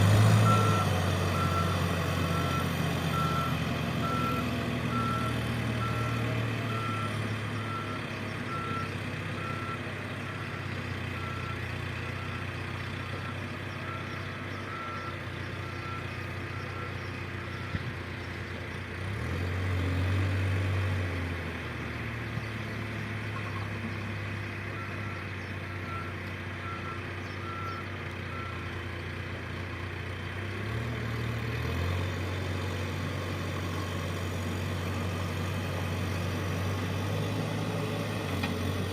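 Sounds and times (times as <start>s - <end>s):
diesel engine running: 0.0s - 38.9s
reversing alarm beeping: 0.2s - 17.9s, 24.7s - 28.8s.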